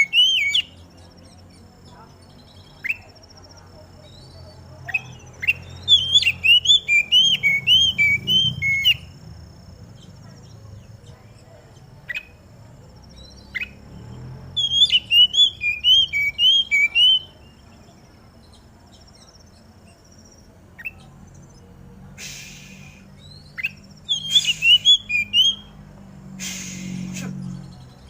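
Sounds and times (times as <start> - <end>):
bird whistled song: 0.0 - 3.4, 4.0 - 12.4, 13.1 - 21.1, 22.2 - 25.8
bird harsh rasp: 24.2 - 24.9, 26.4 - 27.4.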